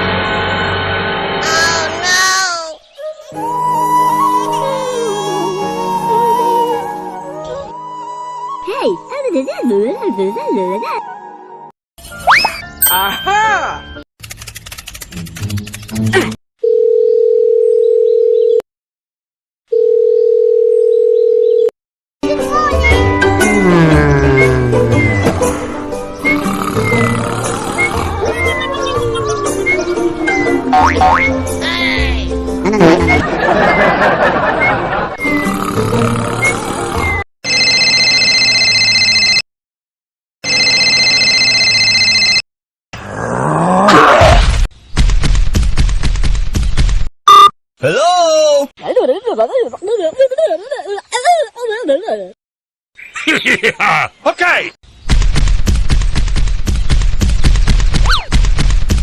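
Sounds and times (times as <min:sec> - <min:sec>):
music: 0:03.2 - 0:11.7, 0:22.2 - 0:33.3
electronic telephone ringing: 0:16.6 - 0:18.6, 0:19.7 - 0:21.7, 0:37.4 - 0:39.4, 0:40.4 - 0:42.4
tone rising in pitch: 0:23.2 - 0:25.3
electronic beep tone: 0:47.3 - 0:47.5.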